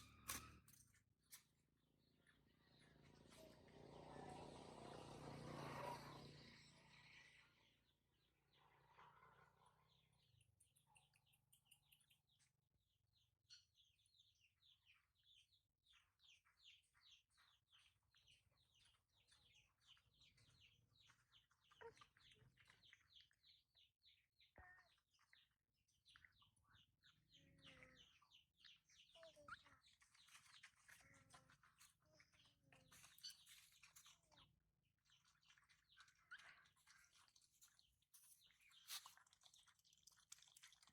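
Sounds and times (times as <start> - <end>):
faint high-pitched chirping: 8.5 - 34.5.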